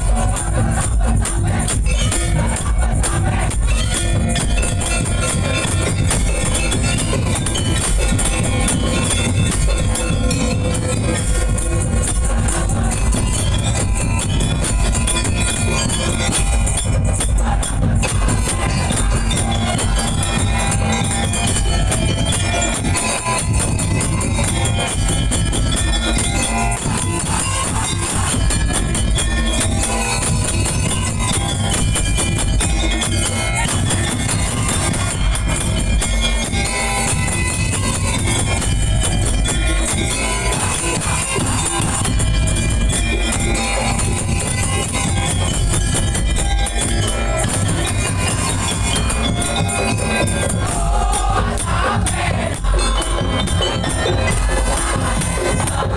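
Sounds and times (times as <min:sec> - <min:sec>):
booming drums: 0:00.0 - 0:55.9
tambourine jingling: 0:00.0 - 0:55.9.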